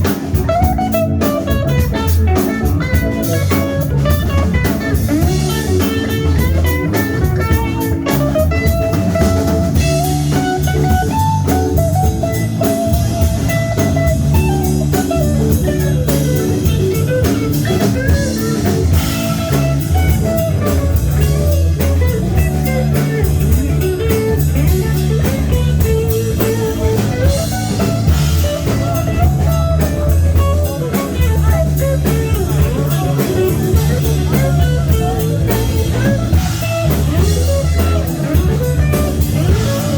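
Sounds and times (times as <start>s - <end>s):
bass guitar: 0.0s - 39.9s
drum kit: 0.0s - 39.9s
electric guitar line: 0.0s - 39.9s.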